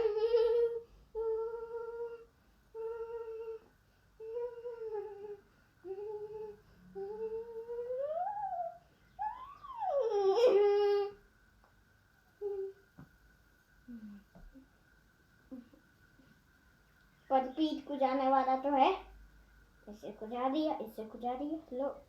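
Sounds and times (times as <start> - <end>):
high voice humming: 0.0 - 11.2, 12.4 - 12.8, 13.9 - 14.7.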